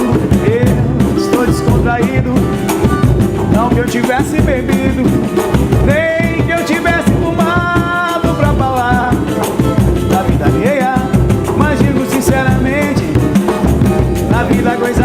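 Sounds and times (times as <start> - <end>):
drums and percussion beat: 0.0 - 15.0
samba band playing: 0.0 - 15.0.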